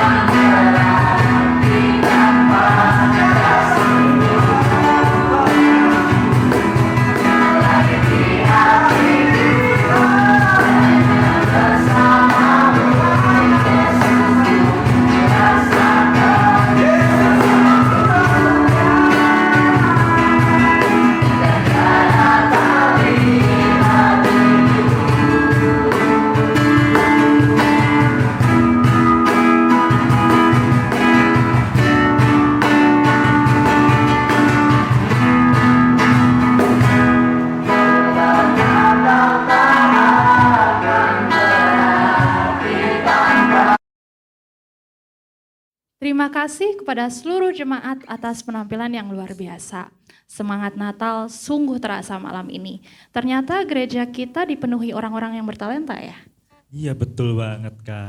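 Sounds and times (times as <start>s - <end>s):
band playing with steady beat: 0.0s - 43.8s
people singing worship music: 0.0s - 43.8s.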